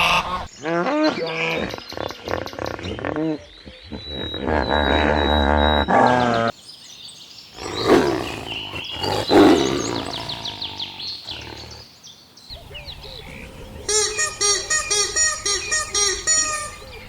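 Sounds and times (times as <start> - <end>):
farm animal calls: 0.0 - 0.5, 7.6 - 11.8, 13.5 - 17.0.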